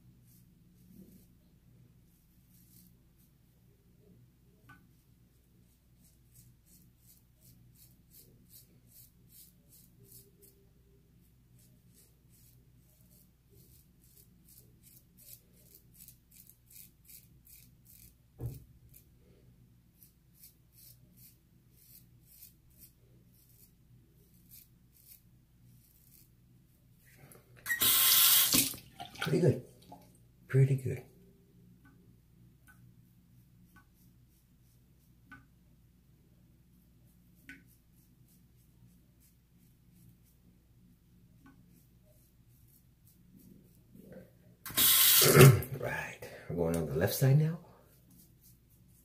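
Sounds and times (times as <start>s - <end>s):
razor scraping stubble: 11.6s - 19.1s, 20.0s - 26.3s, 27.7s - 28.8s, 44.7s - 45.8s.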